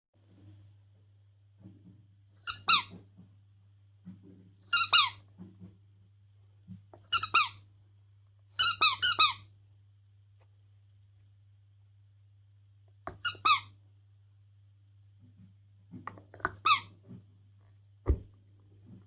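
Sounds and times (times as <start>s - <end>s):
squeaky dog toy squeaks: 2.4s - 3.0s, 4.7s - 5.2s, 7.1s - 7.6s, 8.6s - 9.5s, 13.1s - 13.7s, 16.5s - 16.9s.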